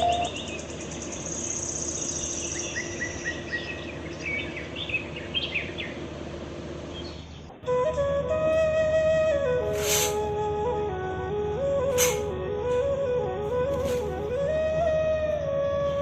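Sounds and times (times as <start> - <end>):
birds chirping and trilling: 0.0 - 7.6
background hiss: 9.5 - 14.4.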